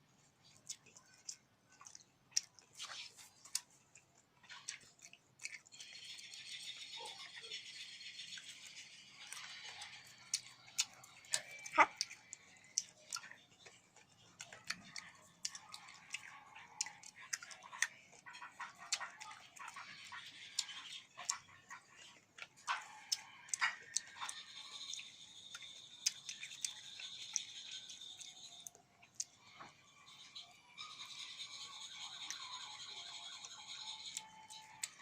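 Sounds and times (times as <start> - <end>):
chewing: 0.0 - 35.0
wet mouth clicks and smacks: 0.4 - 6.4, 8.4 - 29.4.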